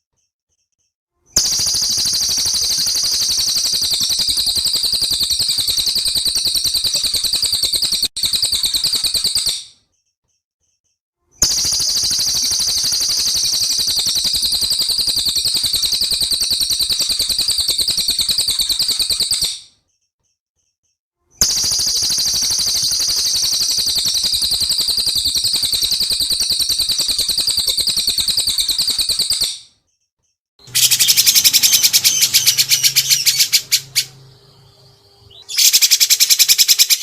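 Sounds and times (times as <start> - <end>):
songbird rolling trill: 30.7 - 34.5.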